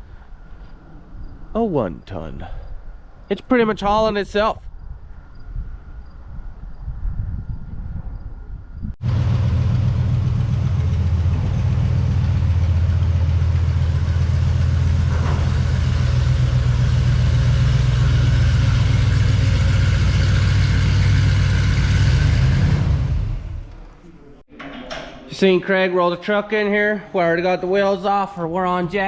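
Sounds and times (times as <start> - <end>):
truck engine droning: 9.0 - 24.0.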